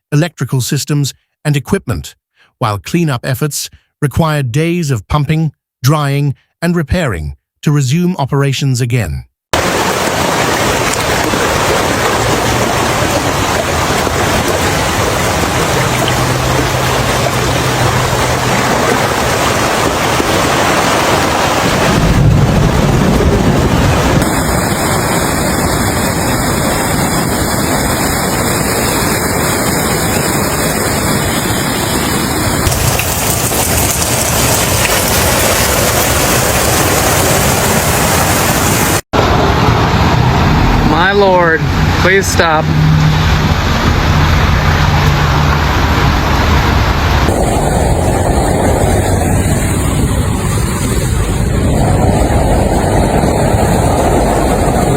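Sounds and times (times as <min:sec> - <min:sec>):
heavy rain: 0:09.6 - 0:54.9.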